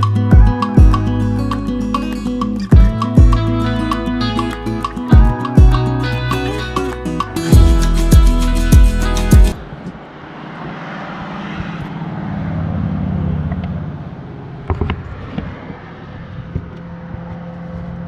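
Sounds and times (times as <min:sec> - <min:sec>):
vehicle passing: 0:06.6 - 0:18.0.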